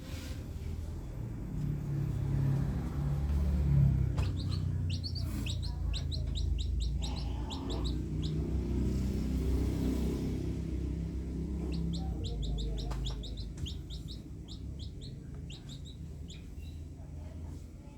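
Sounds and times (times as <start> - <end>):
steady low rumble: 1.2 - 17.4
small bird chirping: 3.5 - 16.9.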